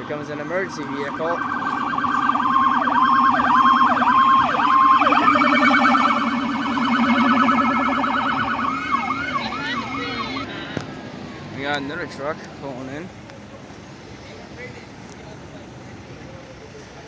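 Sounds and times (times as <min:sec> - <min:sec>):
siren tone sweeping downward: 0:00.0 - 0:10.5
siren warbling yelp: 0:00.0 - 0:10.7.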